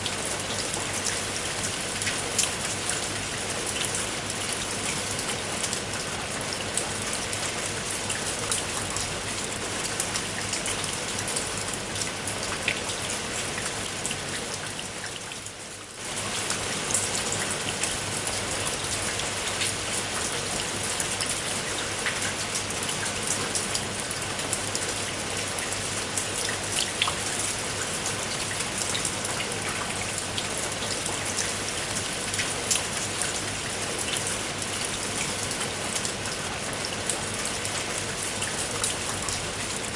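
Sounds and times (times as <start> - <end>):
raindrops ticking on a surface: 0.0 - 39.9
steady rain: 0.0 - 39.9.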